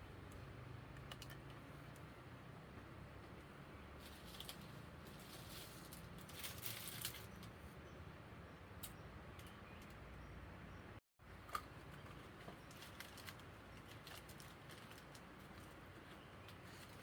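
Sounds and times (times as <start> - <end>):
rustling: 4.0 - 7.6.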